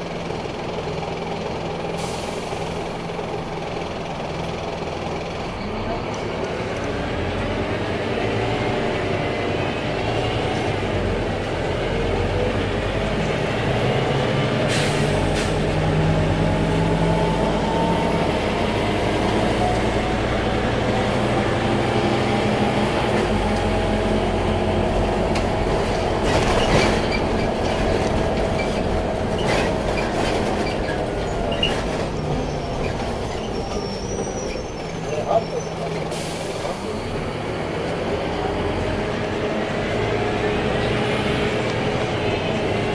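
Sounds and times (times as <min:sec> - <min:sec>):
bus engine accelerating: 0:00.0 - 0:42.9
road noise: 0:00.0 - 0:42.9.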